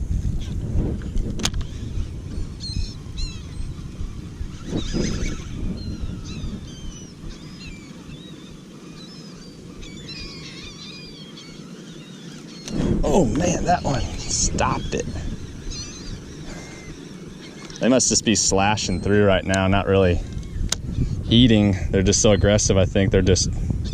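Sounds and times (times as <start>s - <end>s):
low rumbling noise: 0.0s - 8.7s, 12.6s - 23.9s
seabirds calling: 0.0s - 23.9s.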